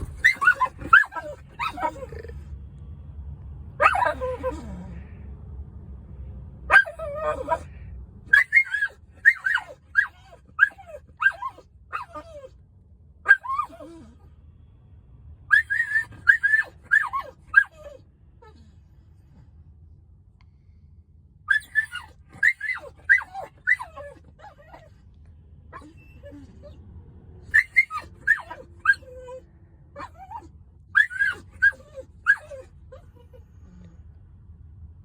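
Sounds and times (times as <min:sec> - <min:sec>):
dog making high cries: 0:00.0 - 0:02.3, 0:03.8 - 0:04.6, 0:06.7 - 0:07.7, 0:08.3 - 0:12.5, 0:13.3 - 0:14.1, 0:15.5 - 0:18.0, 0:21.5 - 0:24.9, 0:27.5 - 0:29.4, 0:30.0 - 0:33.4.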